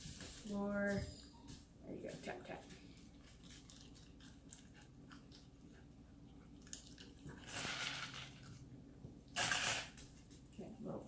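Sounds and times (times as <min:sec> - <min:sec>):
dog chewing kibble: 0:02.8 - 0:08.6.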